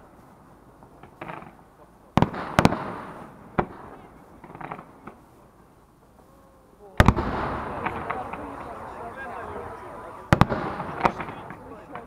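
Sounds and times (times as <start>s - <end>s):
rolling rumble: 0.0s - 12.0s
faint firework pops: 0.8s - 5.3s, 7.0s - 8.7s, 10.3s - 12.0s
firework shells bursting: 0.9s - 5.3s, 7.0s - 12.0s.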